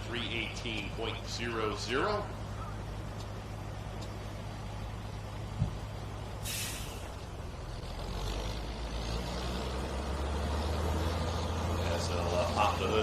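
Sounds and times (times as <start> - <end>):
air brake hiss: 6.4 - 7.1.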